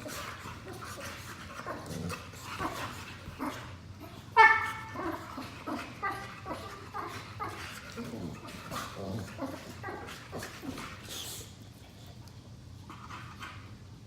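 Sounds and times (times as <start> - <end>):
dogs making low rough noises: 0.0 - 14.0
dog barking high-pitched: 4.4 - 5.2.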